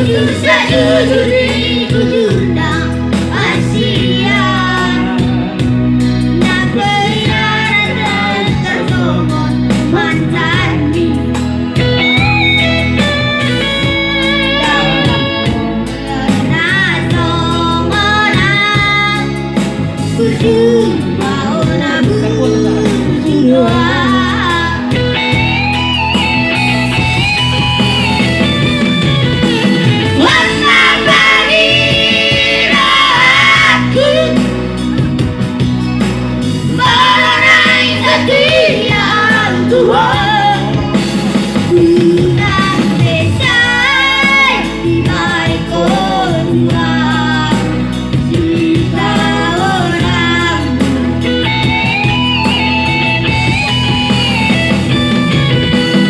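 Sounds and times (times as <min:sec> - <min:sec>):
person singing: 0:00.0 - 0:05.7, 0:14.2 - 0:19.4, 0:20.1 - 0:25.4, 0:30.0 - 0:34.7, 0:36.8 - 0:51.8
instrumental accompaniment: 0:00.0 - 0:56.0.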